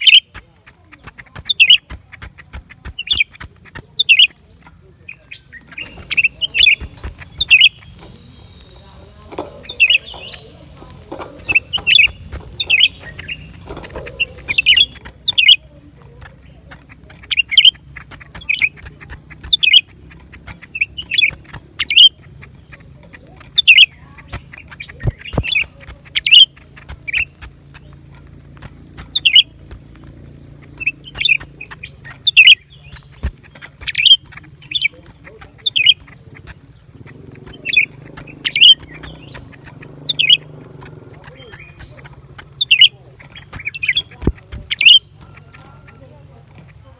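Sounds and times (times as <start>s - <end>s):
bird calling high sharp notes: 5.2s - 15.6s, 30.8s - 35.0s, 35.6s - 46.1s.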